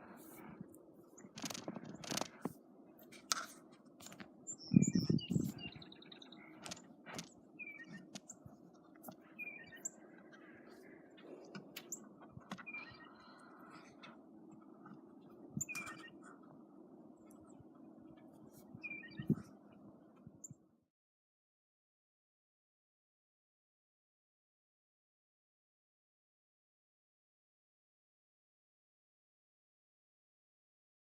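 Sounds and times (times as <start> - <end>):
crunching and scraping clicks: 0.0 - 4.3, 6.3 - 9.3
small birds chirping: 0.0 - 20.6.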